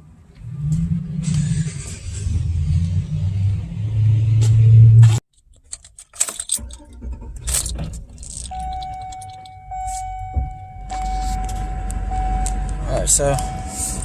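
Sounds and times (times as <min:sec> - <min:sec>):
keys jangling: 0:05.3 - 0:11.7
vehicle engine running: 0:08.0 - 0:14.0
electronic chime tone: 0:08.5 - 0:12.7.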